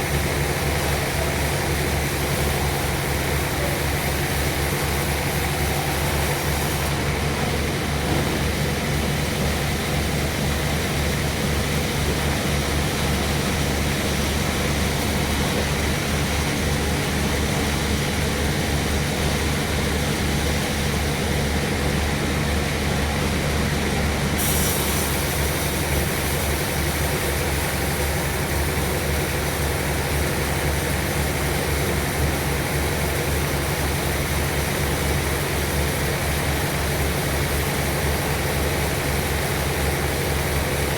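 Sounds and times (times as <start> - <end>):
sawmill engine drone: 0.0 - 40.9.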